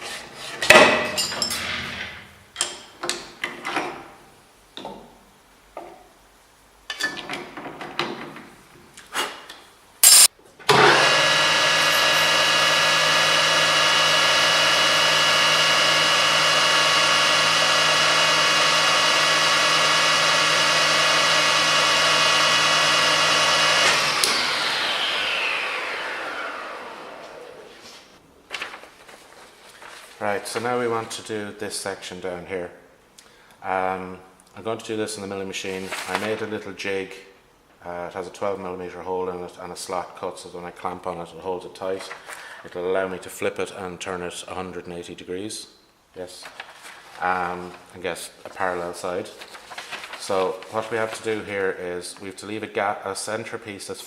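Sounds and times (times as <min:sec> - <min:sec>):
metal lathe whining: 0:10.1 - 0:27.7.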